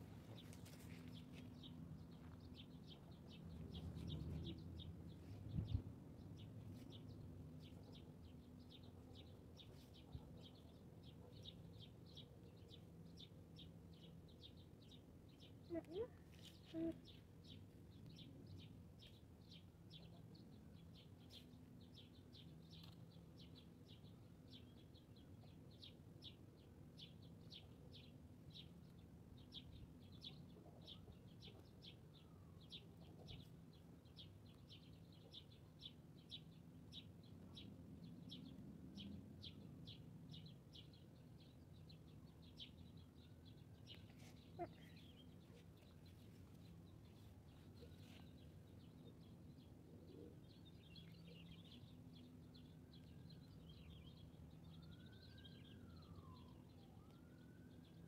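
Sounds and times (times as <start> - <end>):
bird chirping: 0.3 - 58.0.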